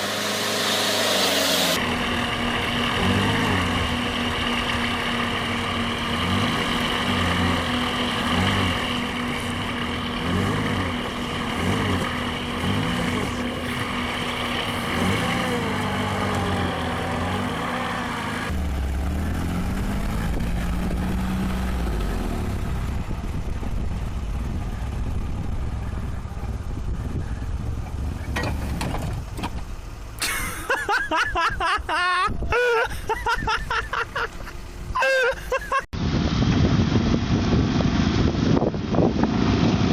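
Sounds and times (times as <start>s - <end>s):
truck engine revving: 0.0s - 31.4s.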